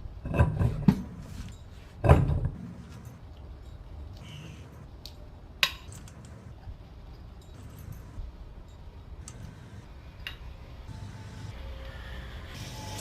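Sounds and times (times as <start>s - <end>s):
sharp metallic clicks: 9.2s - 11.6s.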